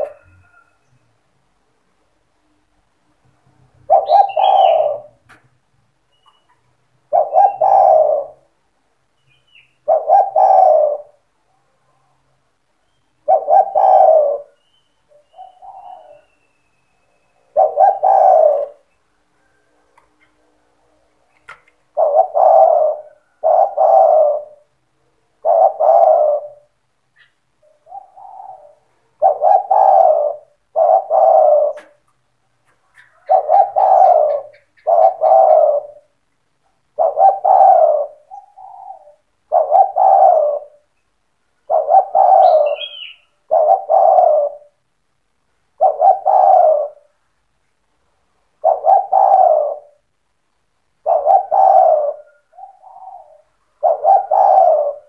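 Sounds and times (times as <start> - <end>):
dove cooing: 0.0 - 0.9, 3.8 - 5.4, 6.3 - 8.6, 9.6 - 11.3, 12.9 - 16.5, 17.2 - 20.4, 21.3 - 41.0, 41.6 - 44.8, 45.7 - 47.2, 48.5 - 50.2, 51.0 - 55.0.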